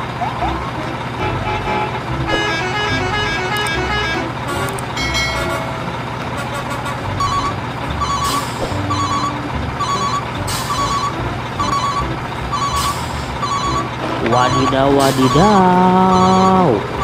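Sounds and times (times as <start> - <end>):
background music: 0.4 - 17.0
reversing alarm beeps: 7.2 - 17.0.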